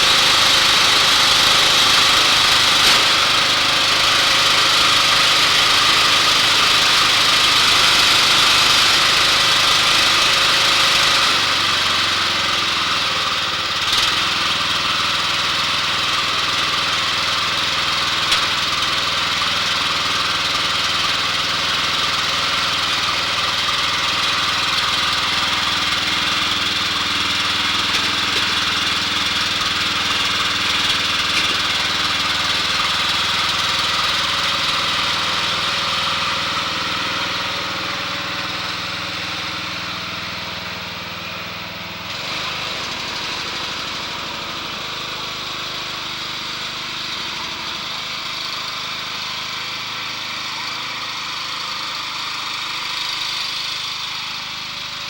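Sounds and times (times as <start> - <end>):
riding mower engine running: 0.0 - 55.0.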